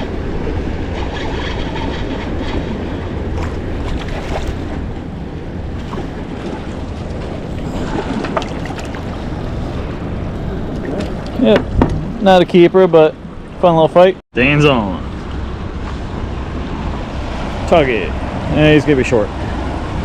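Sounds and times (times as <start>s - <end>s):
wind buffeting microphone: 0.0s - 14.2s
water washing against boat hull: 5.7s - 13.6s.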